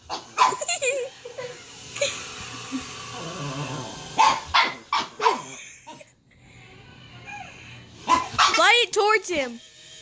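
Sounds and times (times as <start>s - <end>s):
dog barking: 4.2s - 5.5s, 8.1s - 8.7s.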